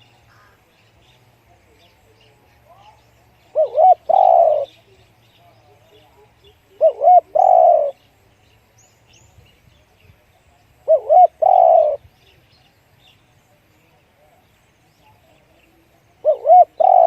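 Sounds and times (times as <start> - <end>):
small birds chirping: 0.0 - 17.0
dove cooing: 3.4 - 4.8, 6.7 - 8.0, 10.8 - 12.0, 16.2 - 17.0.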